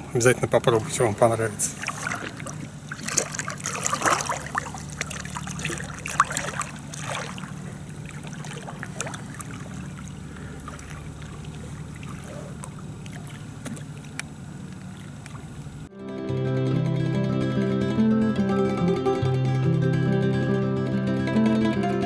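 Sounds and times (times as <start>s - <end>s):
waves lapping at bank: 0.0s - 15.9s
light splashes: 1.6s - 15.9s
motorboat engine humming: 1.7s - 22.0s.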